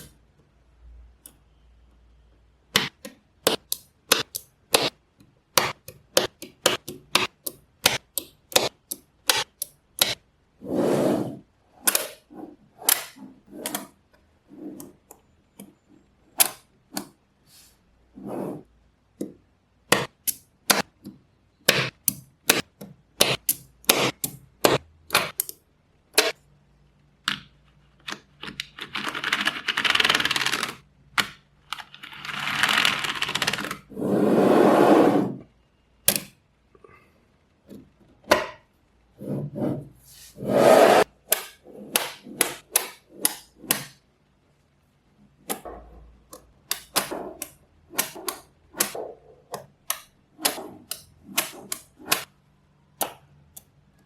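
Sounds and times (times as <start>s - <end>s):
magnetic balls clicking: 2.7s - 10.2s.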